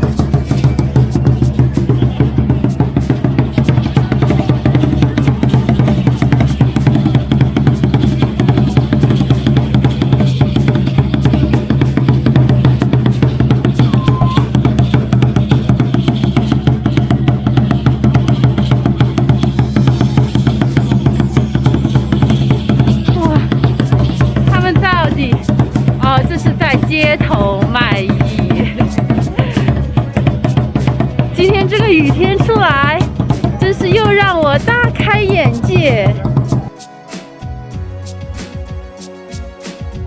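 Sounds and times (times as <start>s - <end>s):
fast dense drumming: 0.0s - 36.7s.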